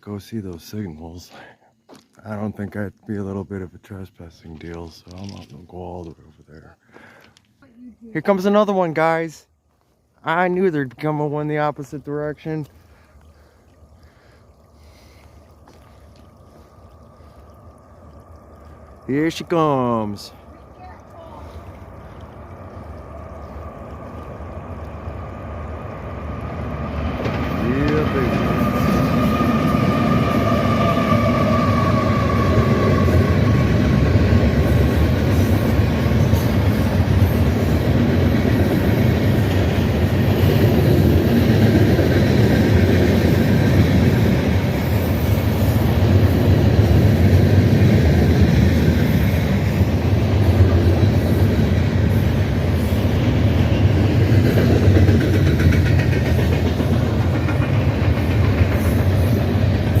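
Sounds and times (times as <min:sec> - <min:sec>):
freight train cars rolling: 0:23.1 - 1:00.0.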